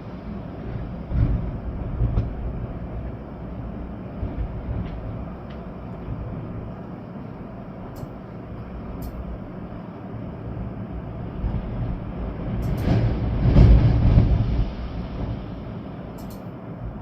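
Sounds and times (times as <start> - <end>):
rain: 0.0 - 17.0
storm wind gusts: 0.0 - 17.0
faint sharp ticks: 16.2 - 16.5.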